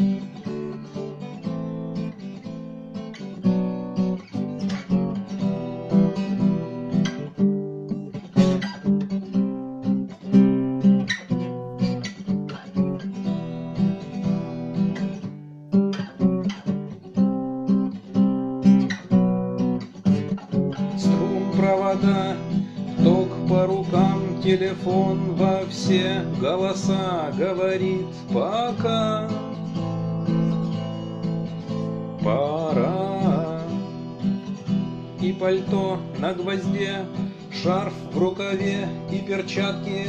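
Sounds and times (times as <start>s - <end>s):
acoustic guitar strumming: 0.0s - 40.0s.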